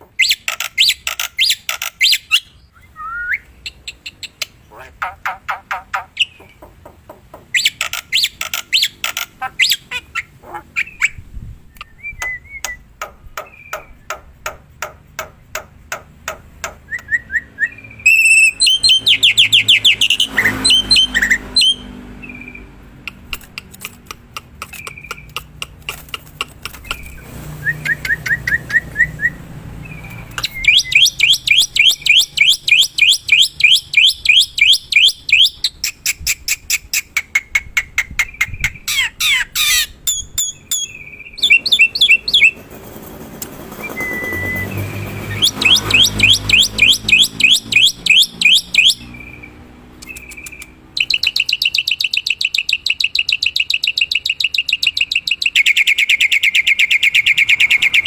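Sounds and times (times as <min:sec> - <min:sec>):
myna harsh chattering: 0:23.0 - 0:27.0
bird quick whistled notes: 0:40.7 - 0:42.6.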